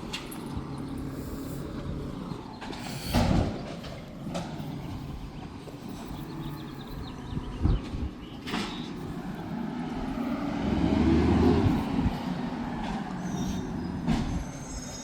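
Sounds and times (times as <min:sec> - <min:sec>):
garbage truck engine rumbling: 0:00.0 - 0:15.0.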